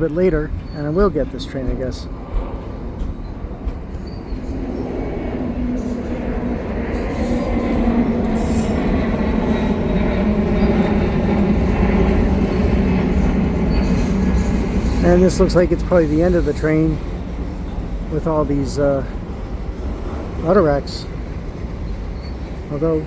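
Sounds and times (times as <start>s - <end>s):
freight train rolling past: 0.0s - 23.0s.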